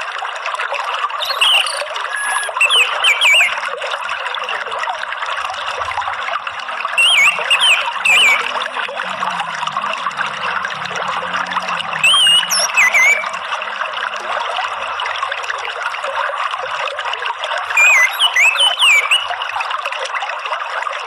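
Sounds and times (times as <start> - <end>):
trickling water: 0.0 - 21.0
thrush whistling: 1.2 - 3.6, 7.0 - 13.6, 17.8 - 19.4.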